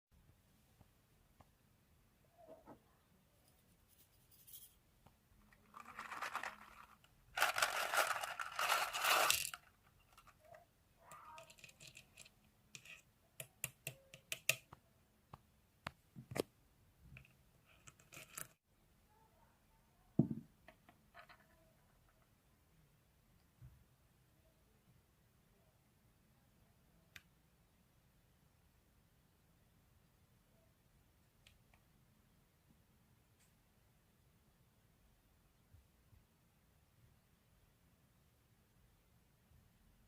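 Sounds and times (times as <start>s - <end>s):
rustling crackling noise: 3.4s - 10.6s.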